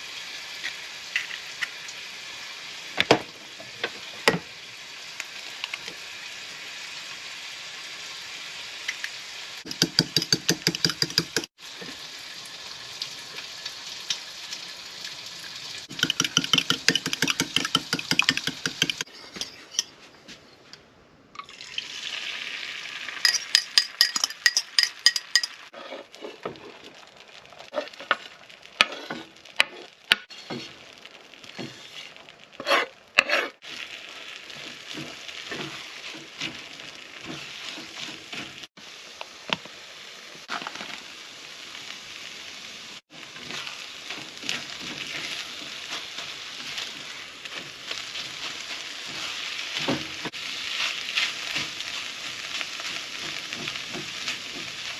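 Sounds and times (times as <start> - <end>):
bacon and eggs sizzling in a pan: 0.0 - 19.1, 21.6 - 54.9
utensil clinking against pan: 15.9 - 20.0, 23.2 - 25.6.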